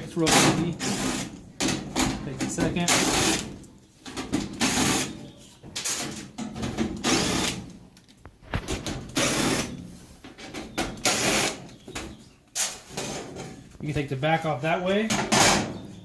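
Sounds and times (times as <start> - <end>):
nut driver whirring and grinding: 7.0 - 7.6.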